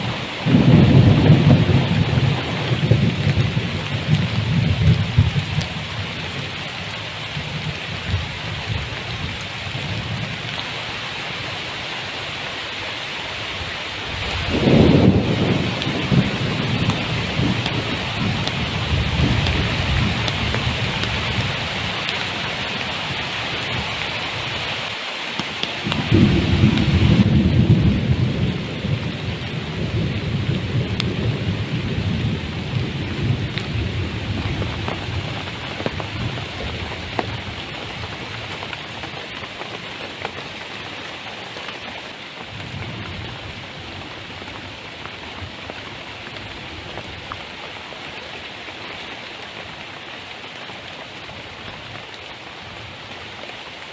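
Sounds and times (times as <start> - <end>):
low thunder rumble: 0.0 - 6.6, 14.2 - 21.7, 25.8 - 38.5
heavy rain falling: 0.0 - 53.9.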